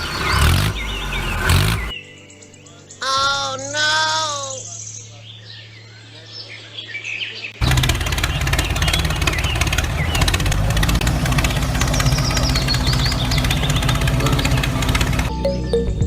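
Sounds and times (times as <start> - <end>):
birds chirping faintly: 0.0 - 16.0
tractor engine knocking: 7.6 - 15.3.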